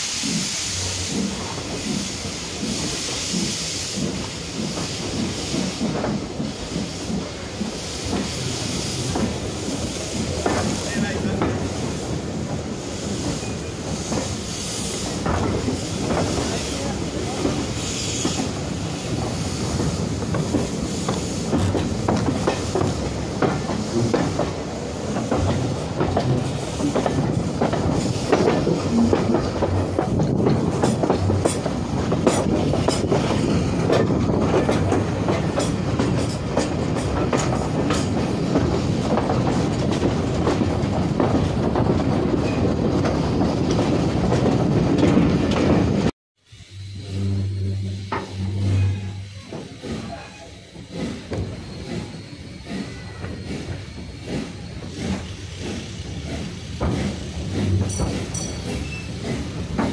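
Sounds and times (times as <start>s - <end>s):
train coach rumble: 0.0s - 59.9s
wheels clicking over rail joints: 15.0s - 46.1s.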